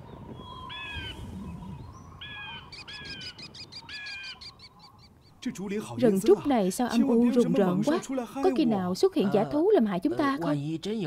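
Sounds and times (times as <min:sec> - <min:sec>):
fast high bird chirps: 0:00.4 - 0:05.4.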